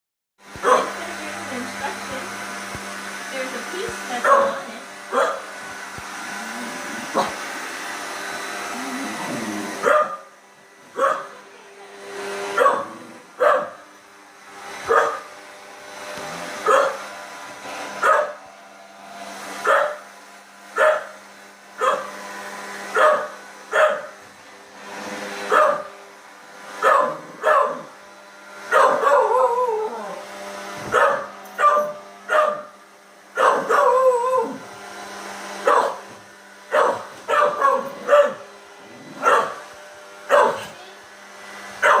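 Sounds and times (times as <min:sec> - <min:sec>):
robot vacuum humming: 0:00.4 - 0:42.0
dog barking: 0:00.6 - 0:00.9, 0:04.2 - 0:05.4, 0:09.8 - 0:10.3, 0:11.0 - 0:11.4, 0:12.6 - 0:13.8, 0:14.9 - 0:15.3, 0:16.6 - 0:17.0, 0:18.0 - 0:18.4, 0:19.6 - 0:20.0, 0:20.8 - 0:21.2, 0:21.8 - 0:22.1, 0:23.0 - 0:24.1, 0:25.5 - 0:25.9, 0:26.8 - 0:27.9, 0:28.7 - 0:29.4, 0:30.9 - 0:32.7, 0:33.4 - 0:34.0, 0:35.6 - 0:36.0, 0:36.7 - 0:38.4, 0:39.2 - 0:39.6, 0:40.3 - 0:40.7.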